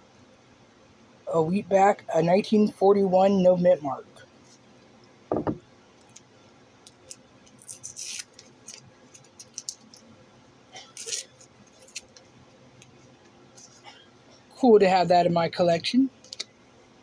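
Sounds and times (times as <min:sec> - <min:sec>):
packaging crinkling: 0:06.9 - 0:10.1, 0:10.9 - 0:12.3.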